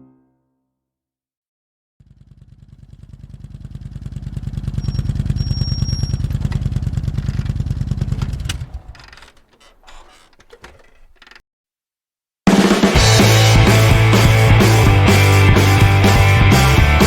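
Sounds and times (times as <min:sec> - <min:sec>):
motorcycle engine running: 0:02.0 - 0:11.3, 0:12.9 - 0:17.0
faint rattles: 0:04.8 - 0:11.4
sharp clicks: 0:06.4 - 0:11.4.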